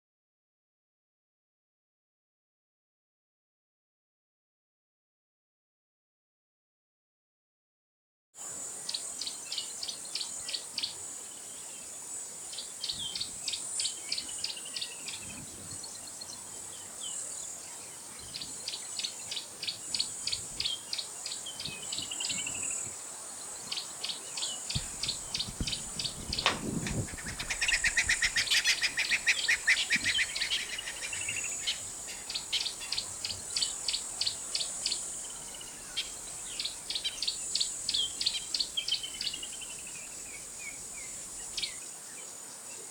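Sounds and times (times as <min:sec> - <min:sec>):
insect drone: 0:08.4 - 0:42.9
bird calls: 0:23.6 - 0:41.8.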